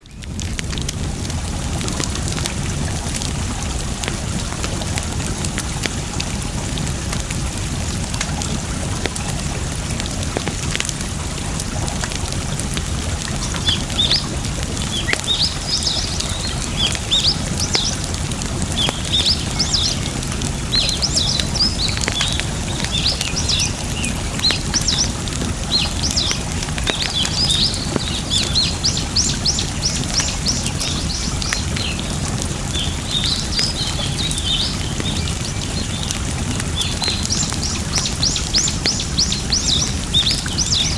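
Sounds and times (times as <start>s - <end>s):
rushing water: 0.0s - 40.9s
campfire crackling: 0.1s - 40.9s
small birds chirping: 13.3s - 40.9s.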